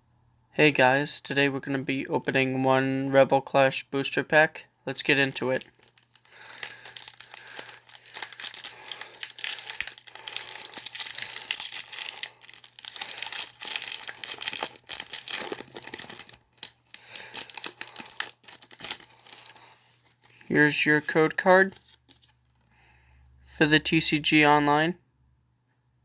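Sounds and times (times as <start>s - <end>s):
foil wrapper tearing and crinkling: 4.9s - 22.7s.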